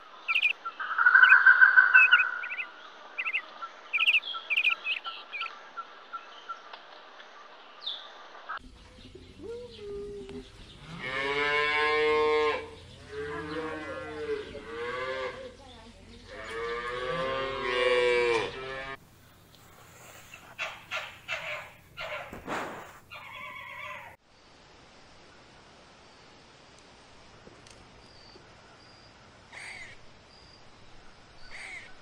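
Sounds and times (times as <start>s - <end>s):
cattle mooing: 16.3s - 19.0s.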